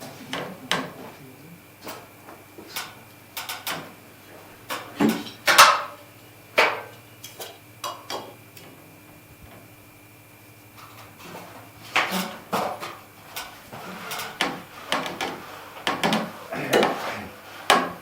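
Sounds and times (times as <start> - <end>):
timber and tools knocking: 13.7 - 18.0.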